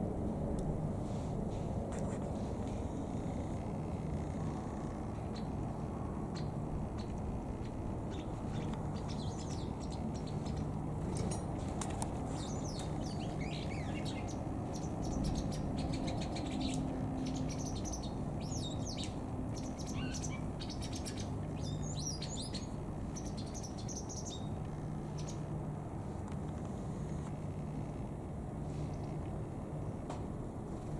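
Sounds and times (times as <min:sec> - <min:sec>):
steady low hum: 0:00.0 - 0:30.9
wagtails twittering: 0:12.4 - 0:24.5.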